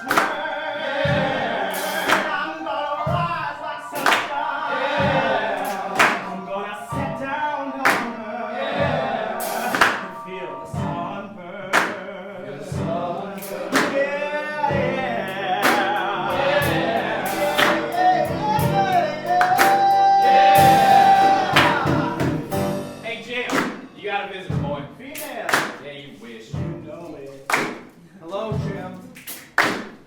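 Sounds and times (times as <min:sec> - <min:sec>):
ensemble singing gospel: 0:00.0 - 0:30.0
sharp percussive strikes: 0:01.1 - 0:11.1, 0:15.5 - 0:25.9.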